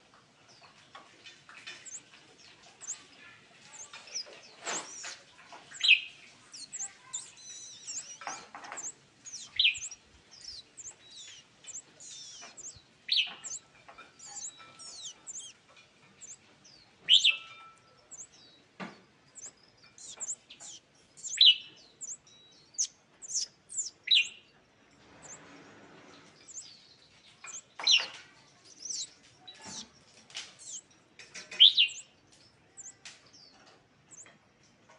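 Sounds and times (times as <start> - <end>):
bird calling high chips: 1.6 - 18.4, 19.3 - 24.4, 26.4 - 26.7, 27.4 - 30.9, 31.6 - 32.2, 32.8 - 33.0.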